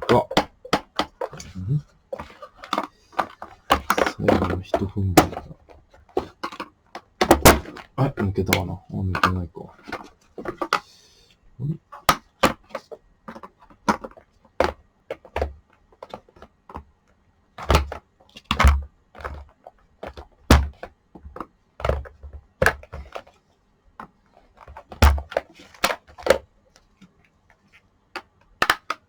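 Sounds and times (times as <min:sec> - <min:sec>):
plastic parts clicking: 0:06.2 - 0:10.9, 0:28.2 - 0:29.0.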